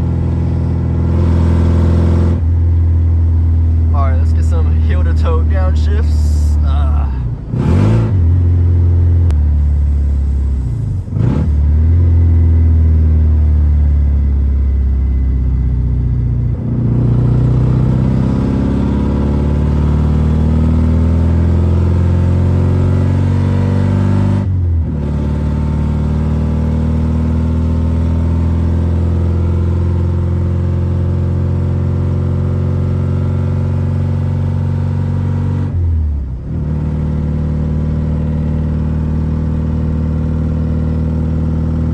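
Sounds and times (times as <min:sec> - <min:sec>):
car engine accelerating: 0:00.0 - 0:41.9.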